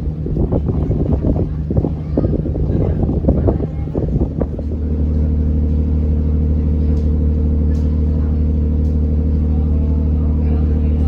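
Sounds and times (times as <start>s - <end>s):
engine humming steadily: 0.0s - 11.0s.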